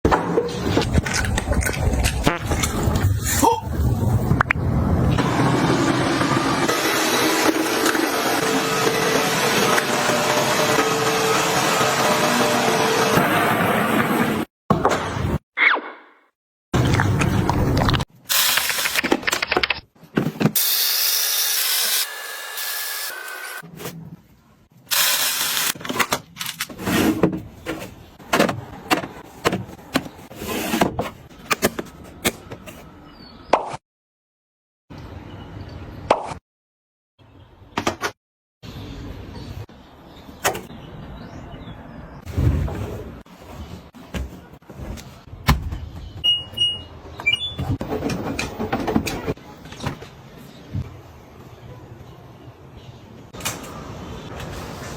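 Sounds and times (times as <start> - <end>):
short electronic beeps: 46.2 - 47.6.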